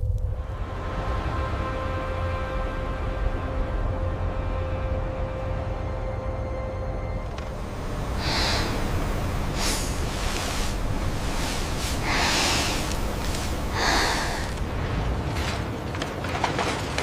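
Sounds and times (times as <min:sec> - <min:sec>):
steady low rumble: 0:00.0 - 0:16.4
person breathing raspily: 0:08.2 - 0:14.6.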